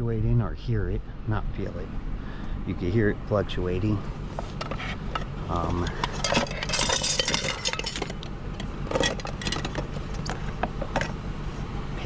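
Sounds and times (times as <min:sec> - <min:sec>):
low engine hum: 0:00.0 - 0:12.0
glass and metal junk clinking: 0:05.2 - 0:11.2.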